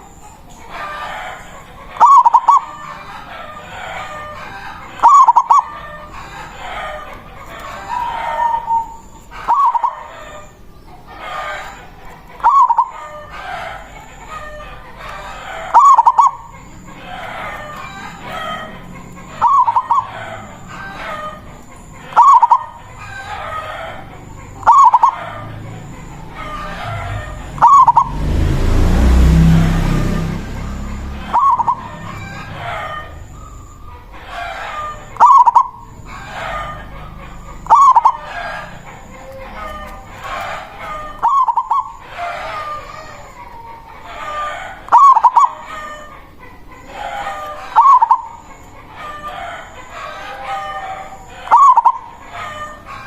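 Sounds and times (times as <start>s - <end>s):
birds calling: 0.0s - 53.0s
dove cooing: 0.0s - 53.0s
loud rushing noise: 25.4s - 33.0s.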